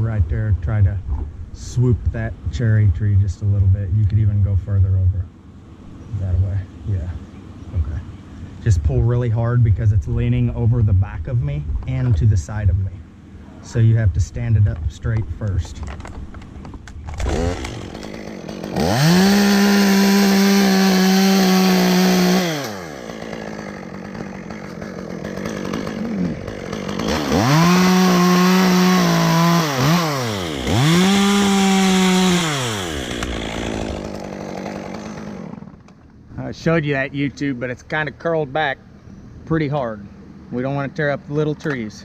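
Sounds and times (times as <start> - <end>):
chainsaw revving: 17.0 - 35.9.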